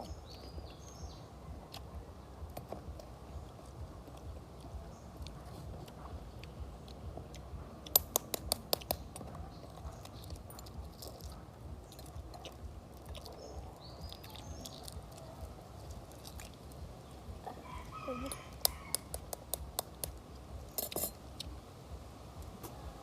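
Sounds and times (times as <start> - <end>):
person chewing food: 1.6 - 2.0, 2.6 - 17.0.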